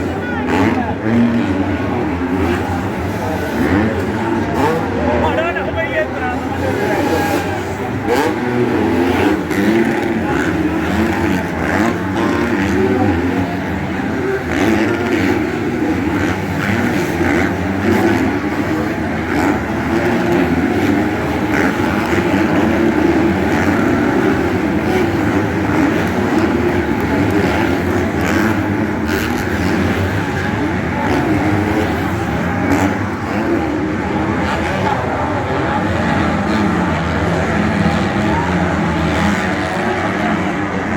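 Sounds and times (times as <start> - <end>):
motocross bikes revving: 0.0 - 40.9.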